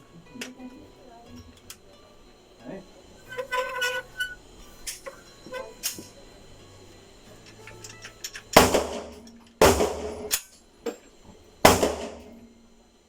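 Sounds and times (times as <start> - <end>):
gunshots echoing: 8.6 - 10.4, 11.7 - 12.4.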